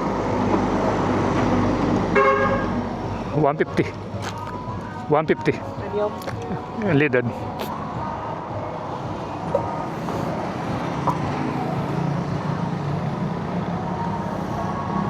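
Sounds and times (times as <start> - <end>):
road and wind noise: 0.0 - 15.0
vehicle engine hum: 0.0 - 15.0.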